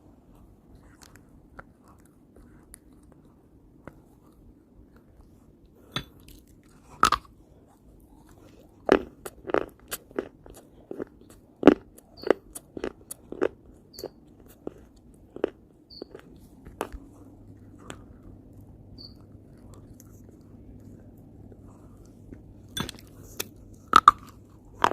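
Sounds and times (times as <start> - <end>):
crunchy food chewing: 6.2 - 24.9.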